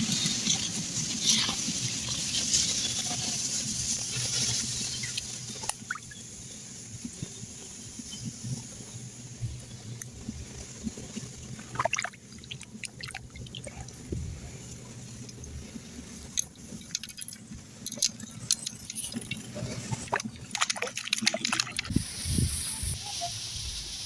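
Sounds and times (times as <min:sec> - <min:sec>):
water splashing and dripping: 0:05.0 - 0:06.2, 0:11.6 - 0:14.0, 0:16.3 - 0:22.2.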